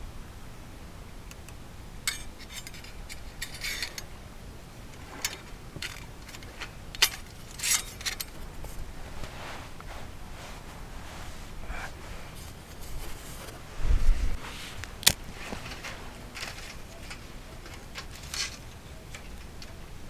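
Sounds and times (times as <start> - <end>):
camp gear clicks and clinks: 1.3 - 10.0, 14.8 - 20.0.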